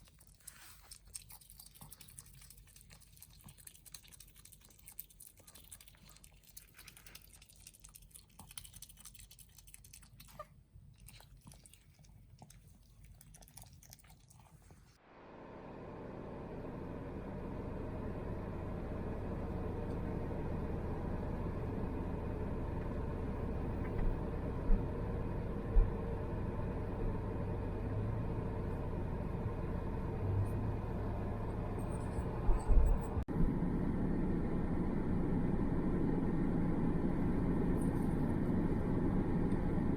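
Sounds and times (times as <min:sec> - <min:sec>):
pet chewing food: 0:00.0 - 0:15.0
low rumble of car driving: 0:15.0 - 0:39.9.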